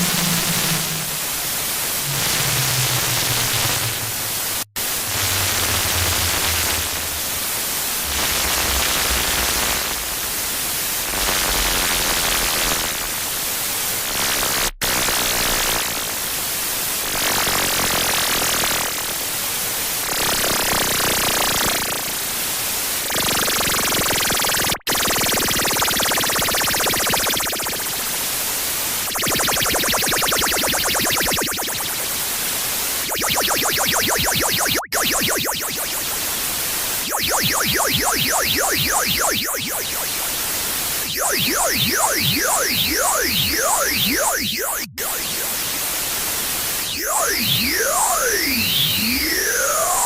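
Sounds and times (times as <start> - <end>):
low buzzing tone: 0.0 - 10.2
loud distorted static hiss: 0.0 - 20.6, 26.2 - 44.1.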